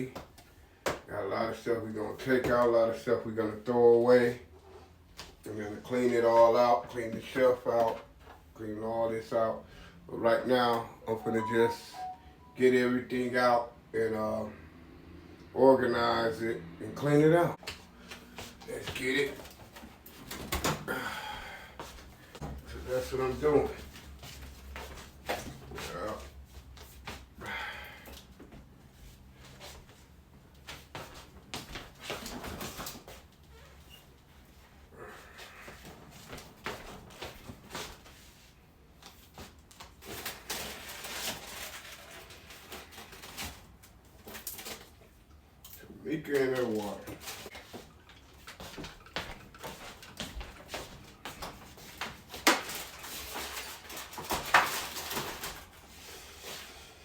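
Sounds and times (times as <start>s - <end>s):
packages rustling: 39.5s - 45.0s, 49.5s - 56.6s.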